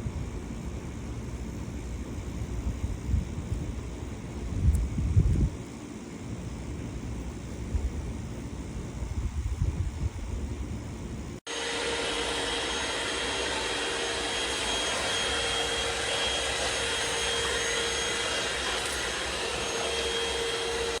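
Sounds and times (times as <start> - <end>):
vacuum cleaner running: 11.4 - 21.0.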